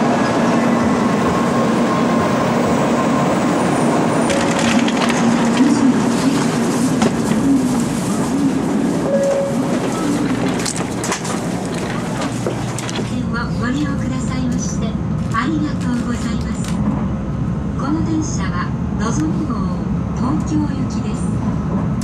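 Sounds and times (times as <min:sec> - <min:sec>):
train rumbling: 0:00.0 - 0:22.0
crackling and clattering clicks: 0:04.3 - 0:07.4, 0:09.7 - 0:13.2.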